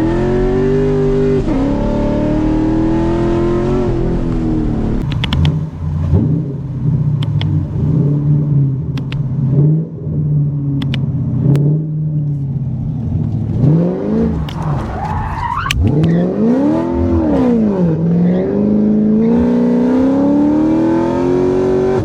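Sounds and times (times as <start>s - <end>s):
car engine revving: 0.0s - 22.0s
exhaust cracks: 2.7s - 9.6s, 10.8s - 18.0s.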